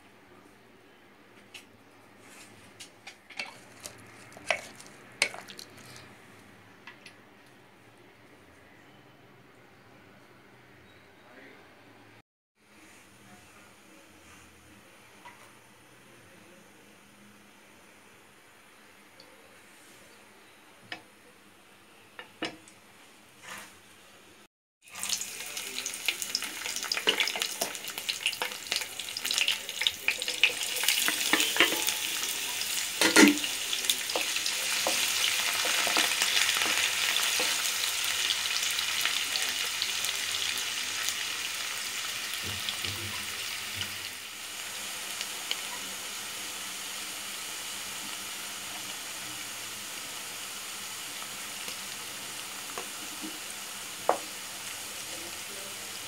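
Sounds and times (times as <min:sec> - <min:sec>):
hot oil sizzling and crackling: 0:03.3 - 0:06.0, 0:24.8 - 0:56.0.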